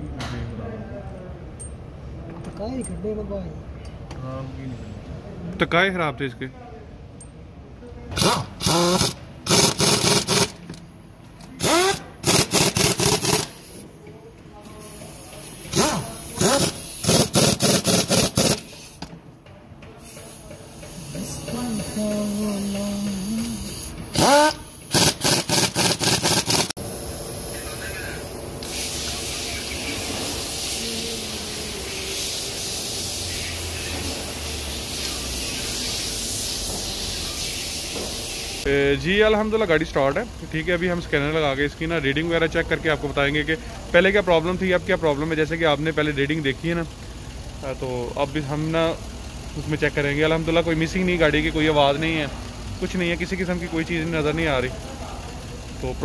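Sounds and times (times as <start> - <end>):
power tool spinning up: 8.2 - 10.5
car engine idling: 20.7 - 56.0.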